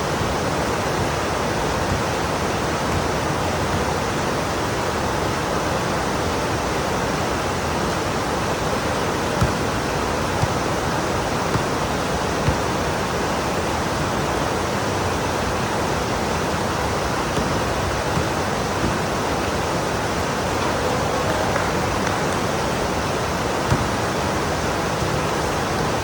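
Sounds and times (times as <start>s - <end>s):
loud taps: 17.3s - 26.0s.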